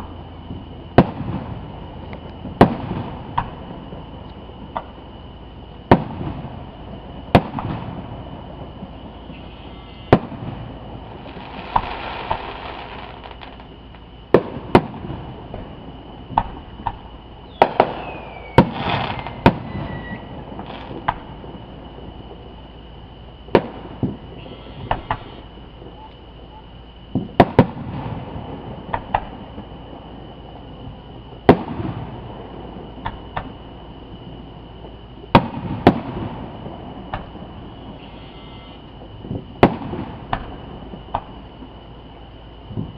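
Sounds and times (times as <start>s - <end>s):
fireworks crackling: 0.0s - 26.2s, 27.1s - 38.2s, 38.8s - 42.9s
distant fireworks bangs: 0.0s - 42.9s
falling whistle: 17.4s - 20.3s.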